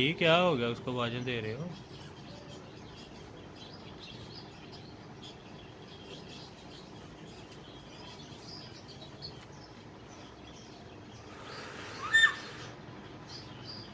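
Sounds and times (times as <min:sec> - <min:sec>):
small birds chirping: 0:00.0 - 0:13.9
parrot call rising: 0:11.4 - 0:12.8.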